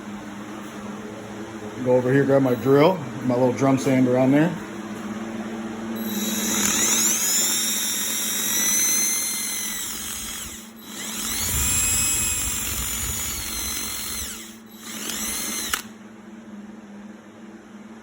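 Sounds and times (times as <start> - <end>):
drill sander whining on wood: 6.0 - 15.9.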